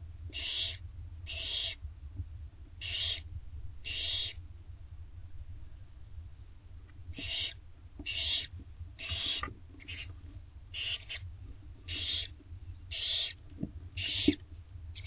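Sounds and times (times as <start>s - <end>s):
owl hissing calls: 0.4s - 1.8s, 2.8s - 3.2s, 3.8s - 4.4s, 7.2s - 10.1s, 10.8s - 11.2s, 11.9s - 12.3s, 12.9s - 13.4s, 14.0s - 14.4s.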